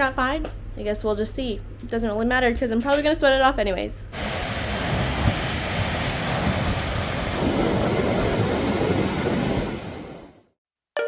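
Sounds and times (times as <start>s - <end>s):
uneven low rumble: 4.2s - 10.4s
steady rushing noise: 4.2s - 10.5s.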